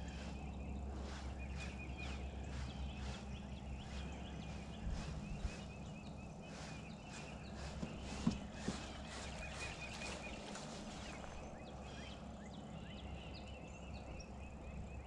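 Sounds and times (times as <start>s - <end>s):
songbirds chirping: 0.0s - 15.0s
small knocks: 7.7s - 9.2s.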